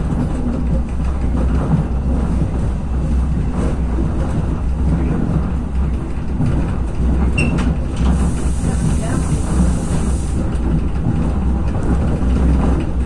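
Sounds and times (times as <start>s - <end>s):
railcar low rumble: 0.0s - 13.0s.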